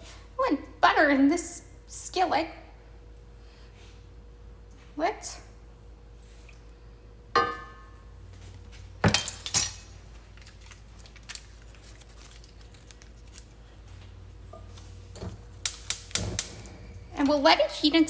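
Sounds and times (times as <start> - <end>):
faint steady hum: 0.0 - 18.0
metal cookware clinking: 9.1 - 10.0.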